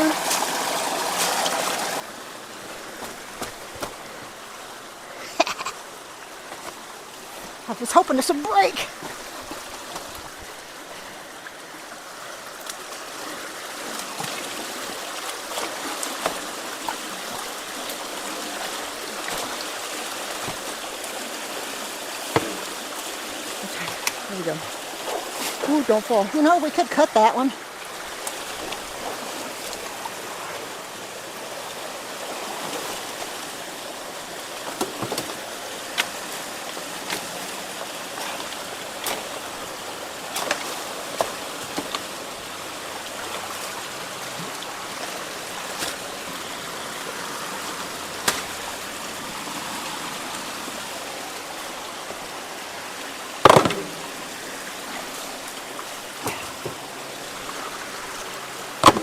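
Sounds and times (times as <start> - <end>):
floodwater rushing through culvert: 0.0 - 59.0
debris knocking and clicking: 53.4 - 54.1.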